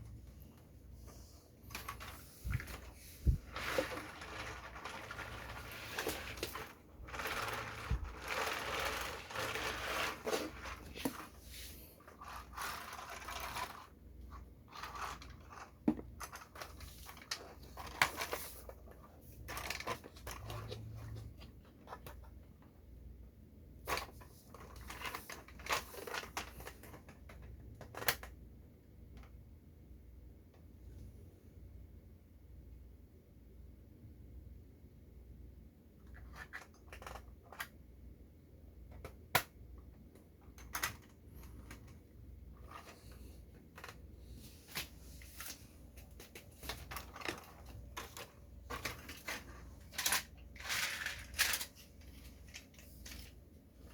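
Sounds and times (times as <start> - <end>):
packaging rustling and scraping: 1.0 - 22.3, 23.8 - 28.3, 41.0 - 53.9.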